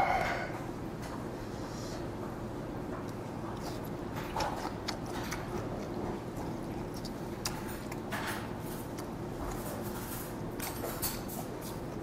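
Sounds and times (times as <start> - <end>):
steady low hum: 0.0 - 12.0
wet mouth chewing sounds: 2.8 - 12.0.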